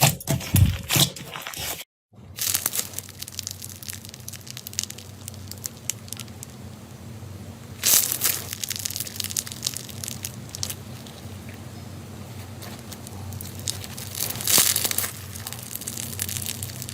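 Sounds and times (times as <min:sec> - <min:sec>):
slime crackling and popping: 0:02.4 - 0:06.7, 0:07.8 - 0:11.2, 0:12.6 - 0:16.9.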